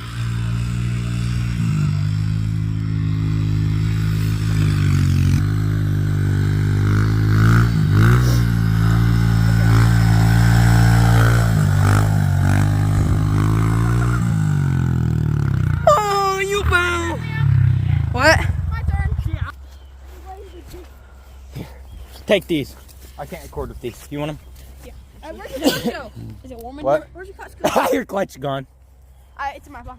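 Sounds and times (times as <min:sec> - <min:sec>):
dirt bike engine under throttle: 0:00.0 - 0:21.9.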